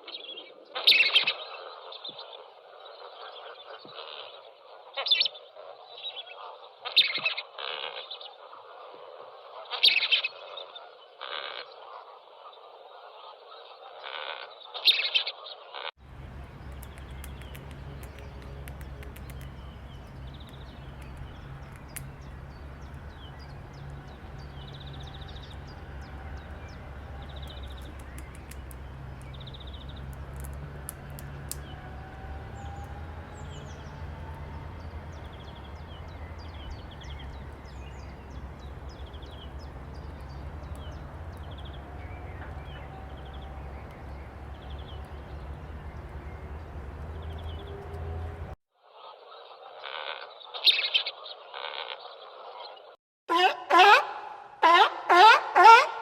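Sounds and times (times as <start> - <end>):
birds chirping and trilling: 0.0 - 8.6, 9.6 - 48.6
steady low rumble: 16.0 - 48.6.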